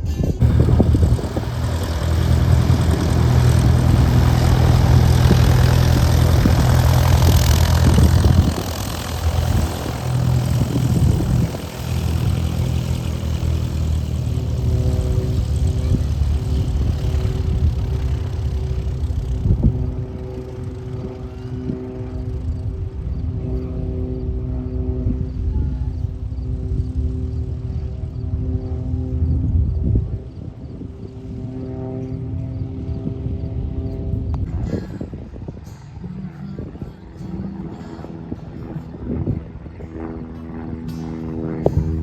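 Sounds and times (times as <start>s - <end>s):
propeller aircraft engine drone: 0.0s - 42.0s.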